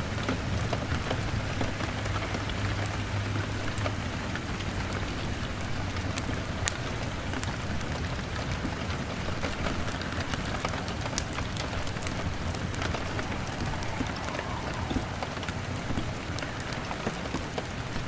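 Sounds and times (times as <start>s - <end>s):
rain on a window: 0.0s - 18.0s
log fire crackling: 10.0s - 16.9s.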